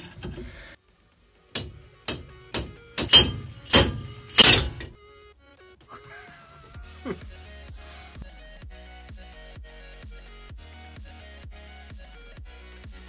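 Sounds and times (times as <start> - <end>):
background music: 0.0 - 13.0
heavy metal blows: 1.6 - 5.0.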